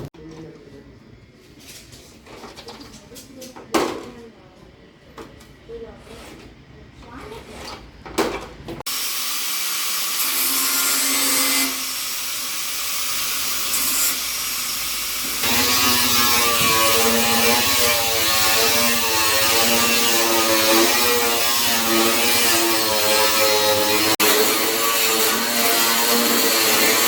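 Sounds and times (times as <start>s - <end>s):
power tool motor whine: 14.6s - 22.8s.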